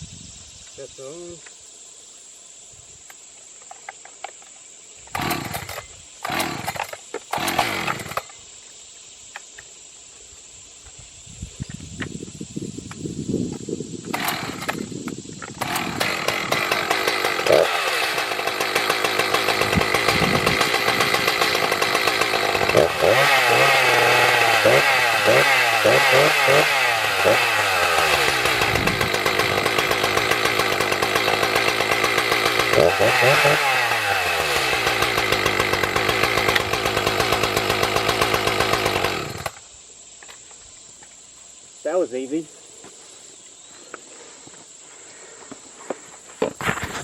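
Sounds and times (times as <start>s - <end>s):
chainsaw engine running: 5.1s - 8.3s, 14.1s - 39.6s.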